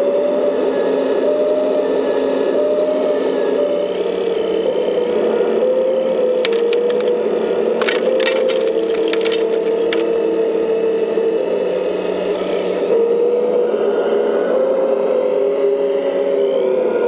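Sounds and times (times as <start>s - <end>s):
sharp cracking clicks: 6.3s - 10.2s.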